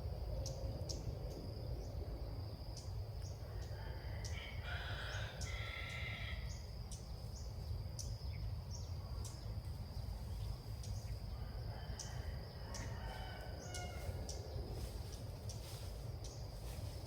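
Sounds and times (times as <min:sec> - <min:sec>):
insect drone: 0:00.0 - 0:17.0
wind rumble on microphone: 0:00.0 - 0:17.0
bird chirping: 0:05.0 - 0:11.4.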